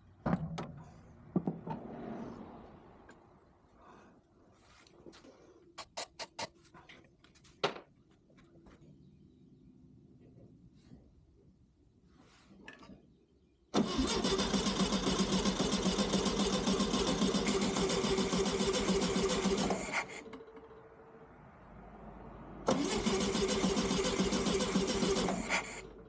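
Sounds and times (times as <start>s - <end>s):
car engine cranking on starter: 13.7s - 20.9s, 22.6s - 26.0s.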